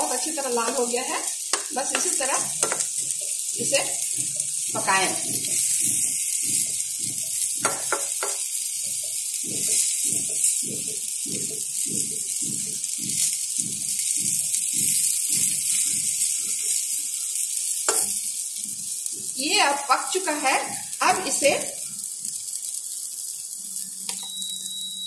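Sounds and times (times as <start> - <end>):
oil sizzling in a pan: 0.0 - 25.0
steel spatula clicking on a pan: 0.2 - 17.0, 17.8 - 18.2.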